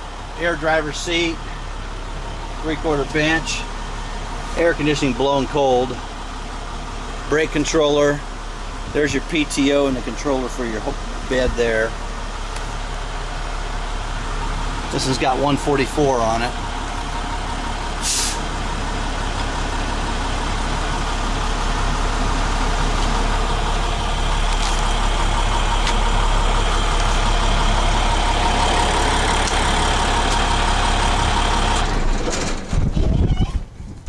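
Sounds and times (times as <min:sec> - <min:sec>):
diesel truck engine idling: 0:00.0 - 0:34.0.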